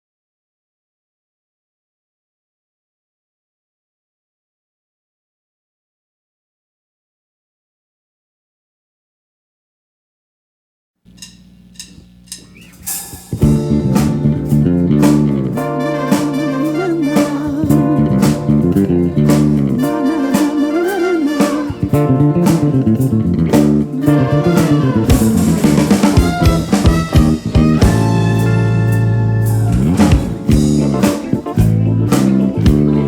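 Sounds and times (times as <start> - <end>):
clicks at an even beat: 11.1 - 16.6
soul band playing: 12.8 - 33.0
held low keyboard note: 13.4 - 31.0
bending lead guitar line: 13.4 - 33.0.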